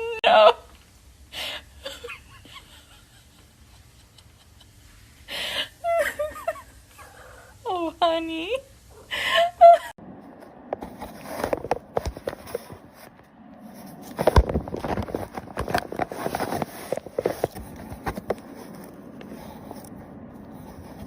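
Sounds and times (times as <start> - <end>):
taps knocks and scrapes: 14.1 - 20.0.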